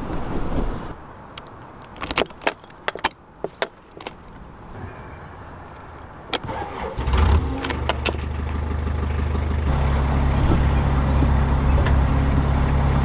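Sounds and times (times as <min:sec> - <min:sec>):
sharp clicks and rattles: 0:01.3 - 0:04.4, 0:05.7 - 0:08.7
boat diesel engine running: 0:04.8 - 0:13.0.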